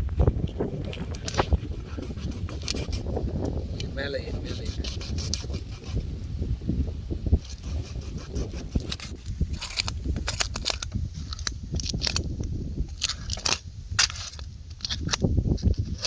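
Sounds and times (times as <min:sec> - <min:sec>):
knife scraping fish: 0:01.2 - 0:03.1, 0:04.2 - 0:06.1, 0:07.4 - 0:10.8.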